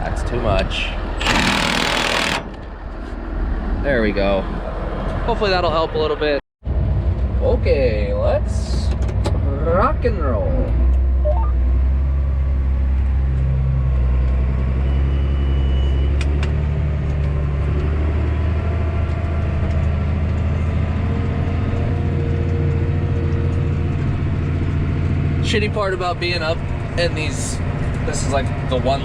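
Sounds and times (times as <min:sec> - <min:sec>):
tractor engine droning: 0:01.0 - 0:03.3
thin high beep: 0:11.2 - 0:11.6.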